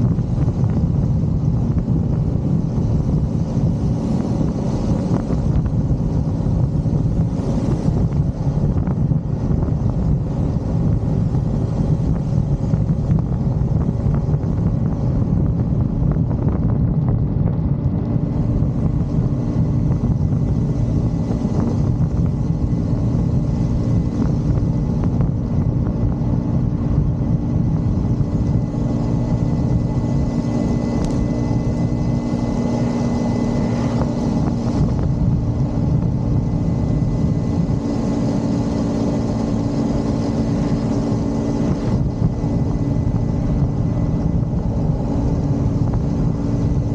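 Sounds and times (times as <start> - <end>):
motorcycle engine cruising: 0.0 - 46.9
rushing noise: 0.0 - 46.9.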